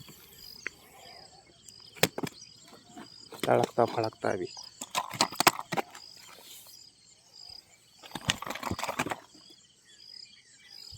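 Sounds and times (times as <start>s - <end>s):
insects chirping: 0.0s - 10.9s
fish flapping and slapping: 8.1s - 9.4s.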